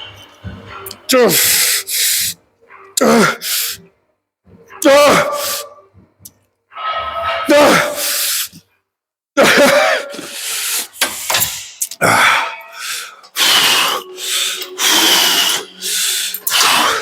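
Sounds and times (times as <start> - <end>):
person breathing hard: 1.3 - 2.4, 3.0 - 4.0, 7.7 - 8.7, 10.1 - 17.0
strained voiced grunts: 2.7 - 3.8, 4.6 - 5.8, 7.2 - 8.2.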